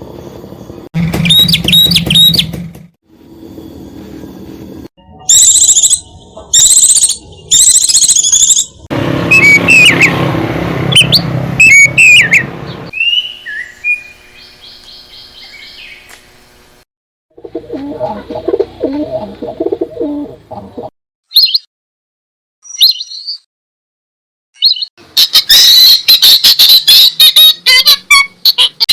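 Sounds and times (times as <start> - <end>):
low choppy bird calls: 1.0 - 2.5
bird chirping: 1.1 - 2.5, 5.2 - 10.2, 11.0 - 16.2, 22.6 - 23.4
bird trill: 1.2 - 2.5, 5.2 - 10.2, 11.0 - 16.1, 22.6 - 23.5, 24.6 - 28.8
high buzzy bird calls: 11.0 - 16.8.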